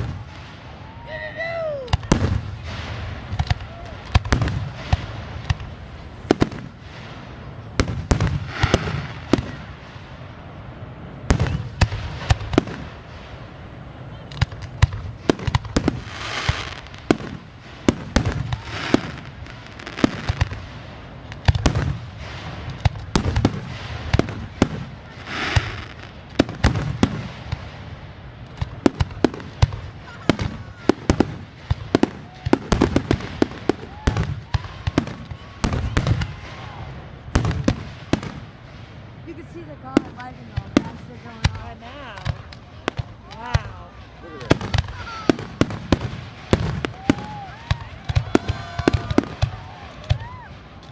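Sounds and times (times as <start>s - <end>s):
fireworks bangs and pops: 0.0s - 10.4s, 11.2s - 50.9s
fireworks hissing and crackling: 0.0s - 50.9s.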